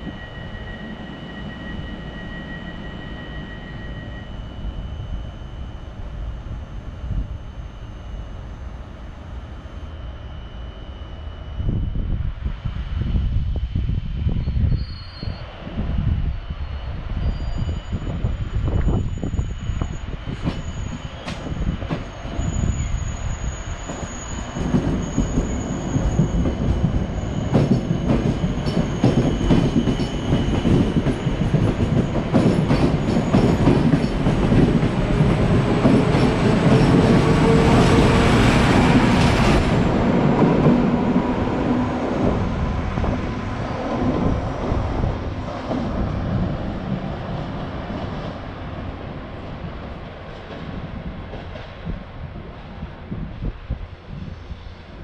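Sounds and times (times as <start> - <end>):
thin high wheel squeal: 0.0 - 5.7, 16.7 - 31.4
diesel locomotive engine: 0.0 - 55.0.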